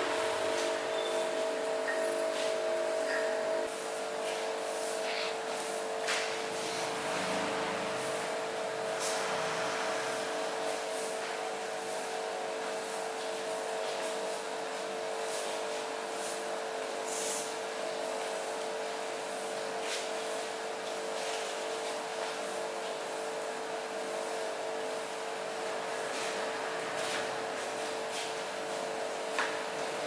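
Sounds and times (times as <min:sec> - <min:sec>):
machine humming with high tone: 0:00.0 - 0:04.0, 0:06.4 - 0:12.9.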